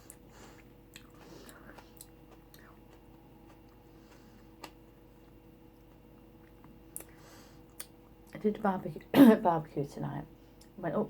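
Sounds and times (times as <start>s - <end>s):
faint chewing: 0.0s - 8.4s
low room hum: 0.0s - 11.0s
soft mouth clicks: 6.9s - 7.1s, 7.7s - 8.0s.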